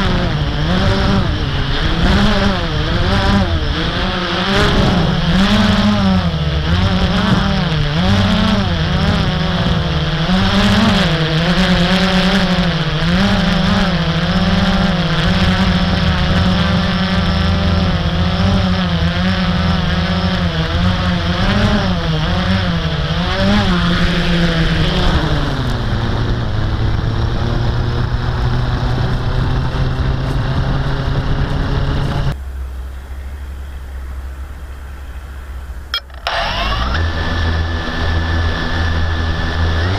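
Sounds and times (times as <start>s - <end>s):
quadcopter motors whining: 0.0s - 27.2s, 33.0s - 39.9s.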